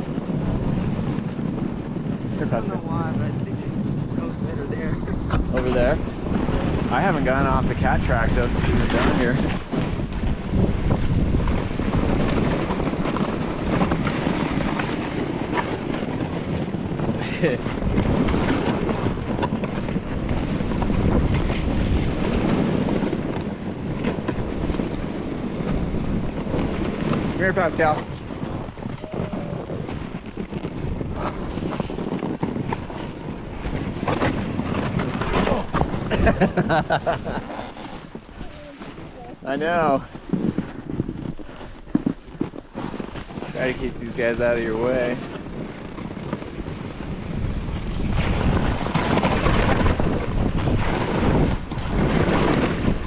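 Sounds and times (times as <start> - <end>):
snowboard sliding on snow: 0.0 - 53.0
wind buffeting microphone: 0.0 - 53.0.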